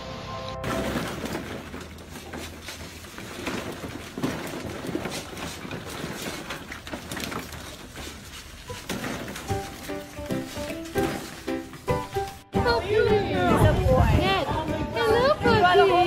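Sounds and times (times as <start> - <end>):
plastic balls clattering: 0.6 - 12.4.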